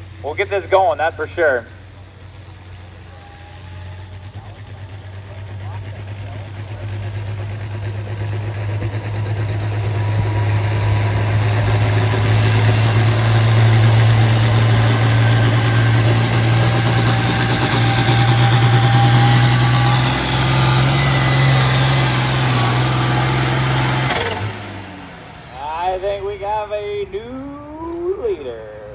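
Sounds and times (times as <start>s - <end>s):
truck engine at full power: 0.0s - 28.9s
faint high whine: 24.1s - 28.9s.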